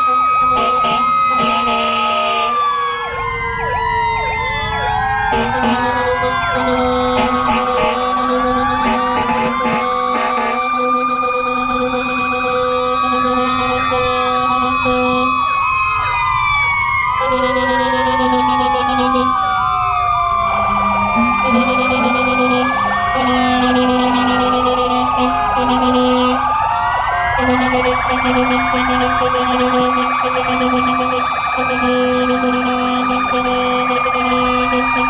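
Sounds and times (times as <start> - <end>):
low horn blasts: 0.0 - 2.6, 5.3 - 15.4, 20.5 - 26.4, 27.4 - 35.0
emergency sirens wailing: 0.0 - 35.0
siren yelp: 0.0 - 35.0.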